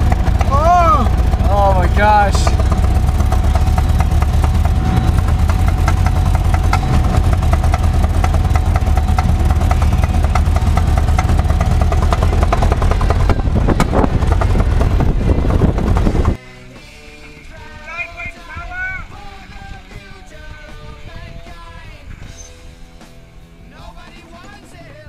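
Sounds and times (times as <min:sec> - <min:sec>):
engine knocking clatter: 0:00.0 - 0:16.4.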